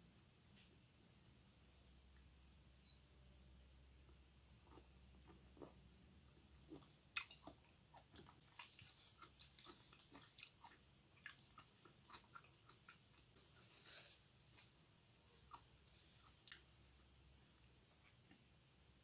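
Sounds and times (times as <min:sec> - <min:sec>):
wet chewing clicks and smacks: 0:06.6 - 0:13.4.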